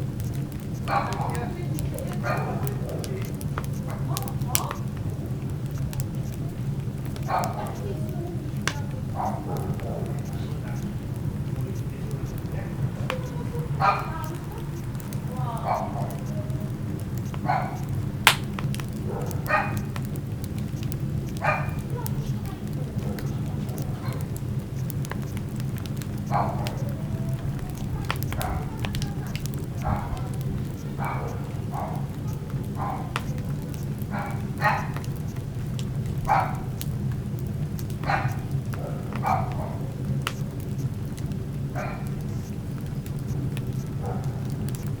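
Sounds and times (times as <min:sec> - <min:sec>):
steady low hum: 0:00.0 - 0:45.0
wood fire crackling: 0:00.0 - 0:45.0
dog barking: 0:00.8 - 0:01.4, 0:02.2 - 0:04.8, 0:07.2 - 0:07.9, 0:08.7 - 0:11.0, 0:13.7 - 0:14.6, 0:15.5 - 0:16.3, 0:17.2 - 0:17.9, 0:19.0 - 0:20.0, 0:21.4 - 0:22.0, 0:22.8 - 0:24.4, 0:26.2 - 0:35.1, 0:36.2 - 0:36.8, 0:38.0 - 0:39.9, 0:41.8 - 0:42.5, 0:44.0 - 0:44.5
sharp pop: 0:18.3 - 0:18.5.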